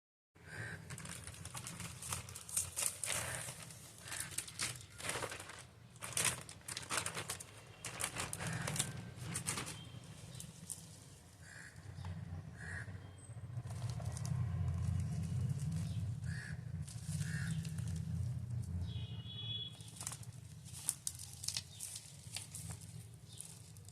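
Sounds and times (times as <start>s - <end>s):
packaging crinkling and rustling: 0.9s - 11.2s, 13.6s - 16.2s, 16.8s - 18.8s, 19.7s - 23.9s.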